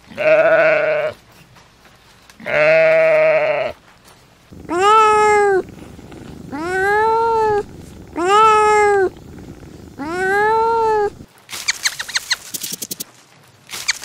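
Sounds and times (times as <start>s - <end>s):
sheep bleating: 0.0s - 1.2s, 2.4s - 3.8s, 4.5s - 11.2s
kitten meowing: 4.6s - 11.2s.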